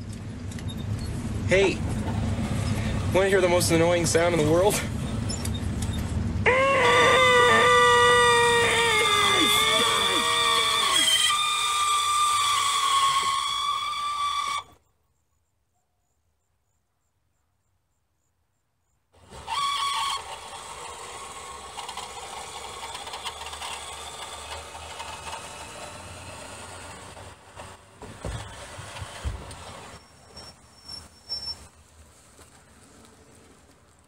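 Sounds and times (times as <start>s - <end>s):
mechanism whirring: 0.0s - 14.7s, 19.2s - 31.4s
convertible top mechanism squealing: 0.0s - 14.8s, 19.2s - 31.8s.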